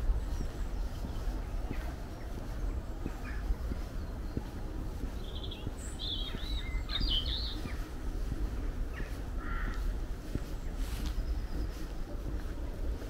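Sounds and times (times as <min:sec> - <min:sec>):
small birds chirping: 0:00.0 - 0:13.0
steady low rumble: 0:00.0 - 0:13.0.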